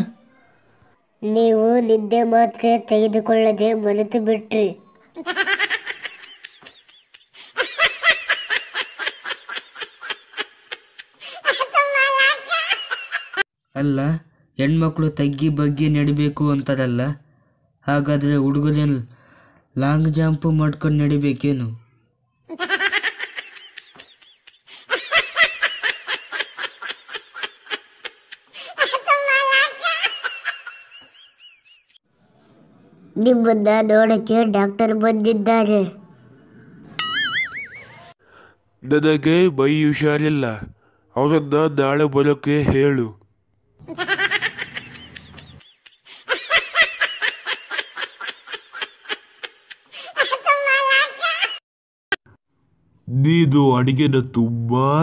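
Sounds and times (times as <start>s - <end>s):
high-pitched laughter: 5.2s - 13.4s, 22.5s - 32.0s, 36.9s - 38.2s, 43.8s - 51.6s.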